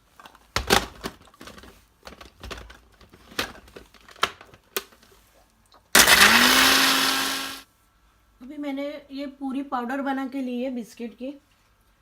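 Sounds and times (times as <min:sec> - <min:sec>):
mixer grinder motor: 0:06.0 - 0:07.6.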